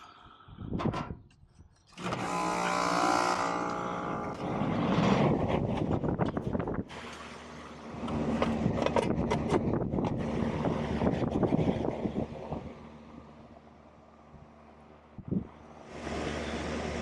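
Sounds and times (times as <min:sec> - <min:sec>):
wind buffeting microphone: 0:04.4 - 0:07.0, 0:07.9 - 0:12.9, 0:15.2 - 0:16.3.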